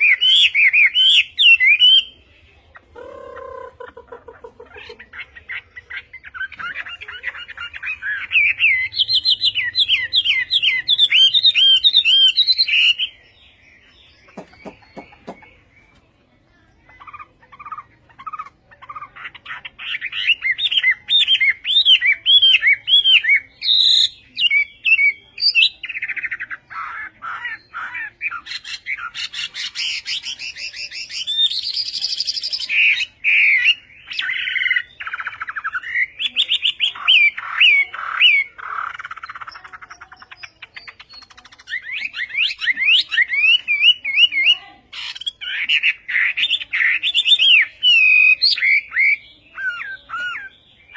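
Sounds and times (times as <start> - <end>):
bird singing whistled trills: 0.0 - 2.2, 6.1 - 16.0, 27.3 - 50.9.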